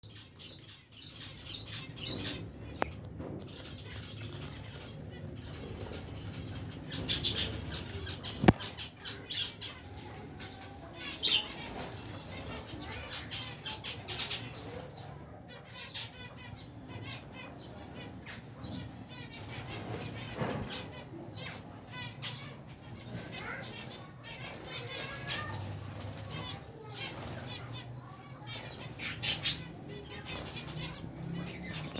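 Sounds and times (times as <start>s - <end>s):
small birds chirping: 0.0s - 31.9s
wings flapping: 23.4s - 31.9s.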